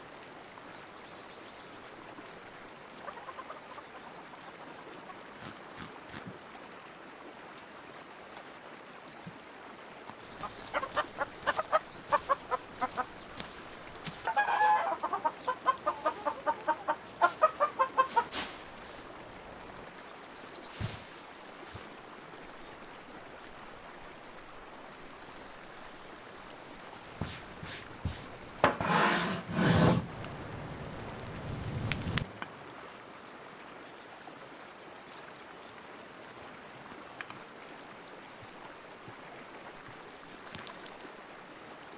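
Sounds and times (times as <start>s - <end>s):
chickens clucking: 3.0s - 4.6s, 10.1s - 19.0s.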